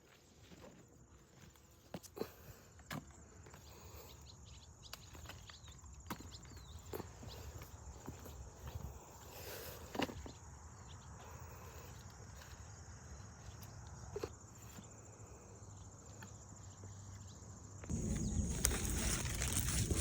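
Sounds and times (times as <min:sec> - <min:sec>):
insects trilling: 0:01.8 - 0:20.0
rustling handling noise: 0:17.9 - 0:20.0.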